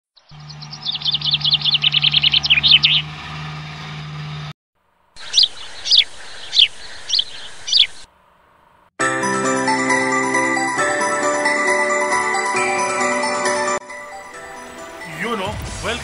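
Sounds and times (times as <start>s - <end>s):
birds chirping: 0.2s - 4.5s, 5.2s - 8.8s.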